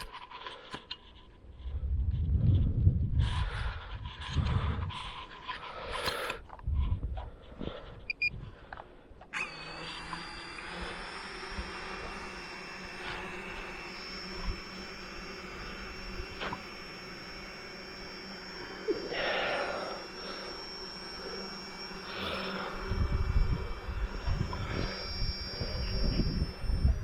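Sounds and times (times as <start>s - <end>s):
drone propellers buzzing: 0.0s - 27.0s
low gusty rumble: 1.4s - 5.4s, 6.6s - 8.6s.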